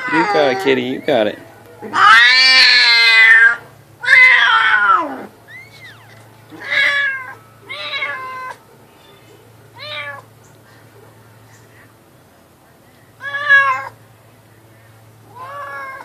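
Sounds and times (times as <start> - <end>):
cat meowing: 0.0 - 1.0, 1.9 - 9.2, 9.8 - 10.3, 13.2 - 14.0, 15.3 - 16.0
cat yowling: 0.0 - 1.2, 1.9 - 8.6, 9.7 - 10.3, 13.2 - 14.0, 15.3 - 16.0.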